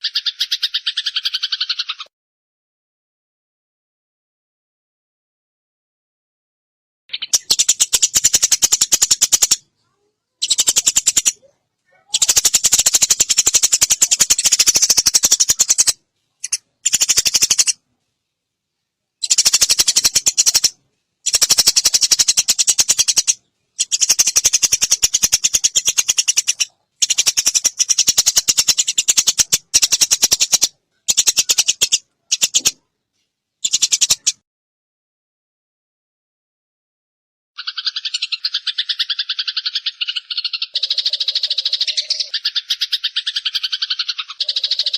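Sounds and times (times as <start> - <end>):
sparrow chirping: 0.0 - 2.1, 7.1 - 17.8, 19.2 - 32.8, 33.6 - 34.4, 37.6 - 44.9.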